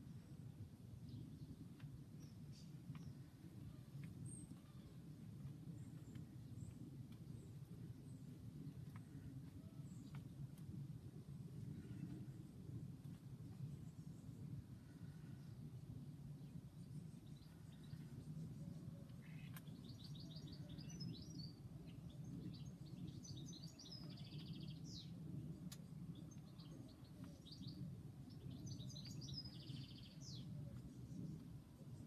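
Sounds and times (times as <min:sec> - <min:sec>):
faint low background hum: 0:00.0 - 0:32.0
songbird singing with trills: 0:16.4 - 0:32.0.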